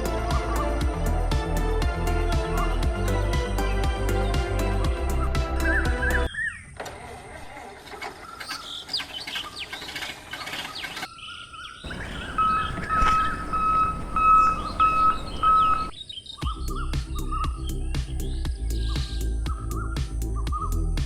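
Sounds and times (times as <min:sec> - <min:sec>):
birds chirping and twittering: 0:08.1 - 0:20.9.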